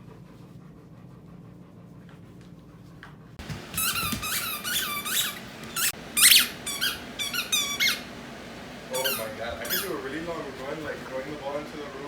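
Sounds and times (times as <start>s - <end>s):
low room hum: 0.0s - 12.0s
squeaky dog toy squeaking: 3.8s - 8.0s.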